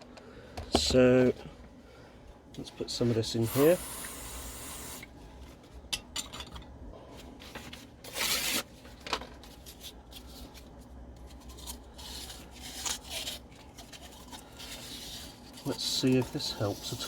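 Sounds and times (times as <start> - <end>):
abrasive paper scraping steel: 12.0 - 17.0.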